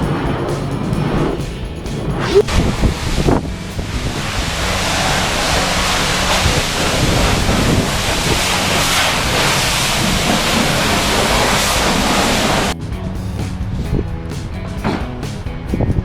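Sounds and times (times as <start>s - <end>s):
pressure washer jet hissing: 0.0s - 12.8s
background music: 12.7s - 16.0s.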